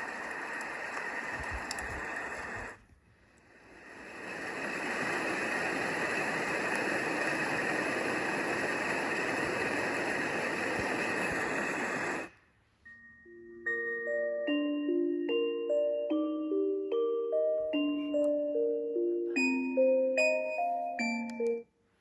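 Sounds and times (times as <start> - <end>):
hissing rain-like sound: 0.0 - 12.3.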